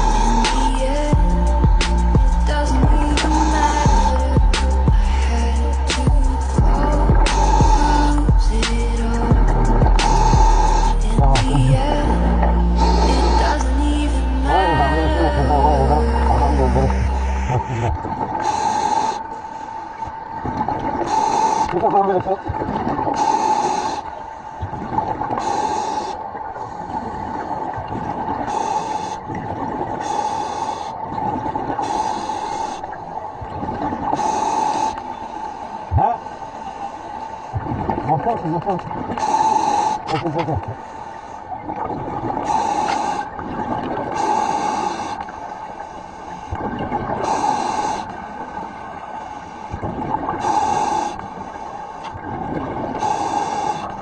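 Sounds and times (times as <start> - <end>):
diver breathing through regulator: 0.0 - 12.0, 12.6 - 13.8, 18.4 - 20.0, 21.0 - 21.9, 23.1 - 24.6, 25.3 - 27.1, 28.3 - 31.1, 31.7 - 33.0, 34.1 - 37.7, 39.1 - 41.5, 42.4 - 52.2, 52.9 - 54.0
steady hum and low rumble: 0.0 - 19.0
steady hum: 0.0 - 54.0.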